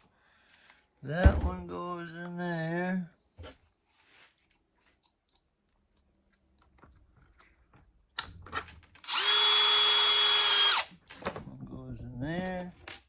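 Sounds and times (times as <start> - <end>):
power driver running: 9.0 - 10.9.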